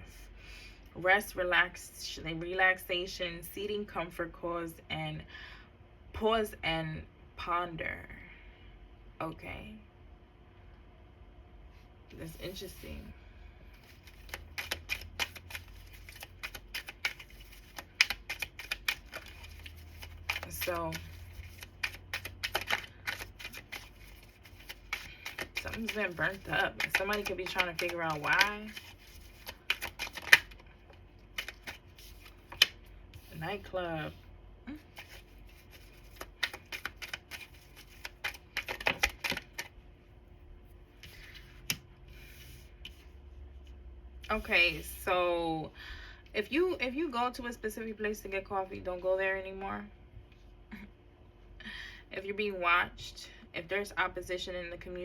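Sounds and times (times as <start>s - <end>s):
soft rustling of cards: 11.7s - 39.8s, 40.6s - 45.0s
cards clicking and tapping: 13.9s - 30.6s, 31.3s - 32.8s, 35.0s - 39.7s.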